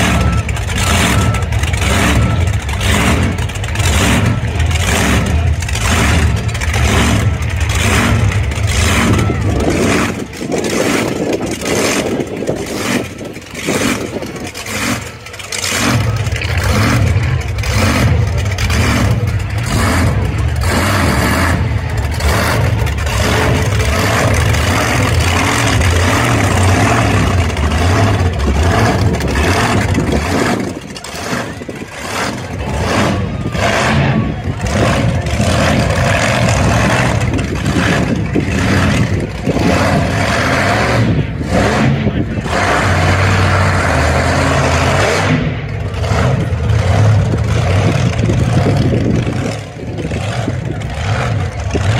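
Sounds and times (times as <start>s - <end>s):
truck engine revving: 0.0s - 51.9s.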